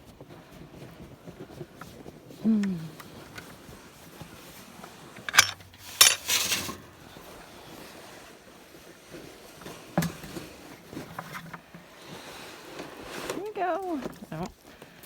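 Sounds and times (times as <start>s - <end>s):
brief rustle: 5.1s - 6.9s
sharp metallic clinks: 5.3s - 6.7s.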